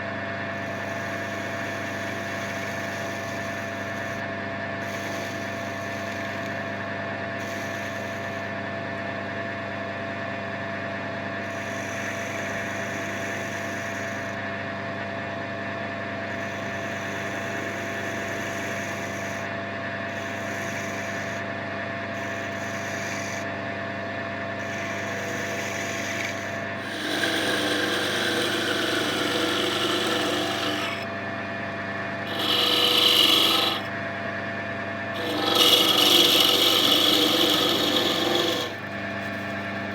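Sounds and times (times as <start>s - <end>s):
tool rubbing spinning wood: 22.2s - 23.5s, 24.6s - 31.2s, 32.1s - 34.2s, 35.0s - 39.9s
wood lathe humming: 22.2s - 23.5s, 24.6s - 31.3s, 32.0s - 34.2s, 34.9s - 39.9s.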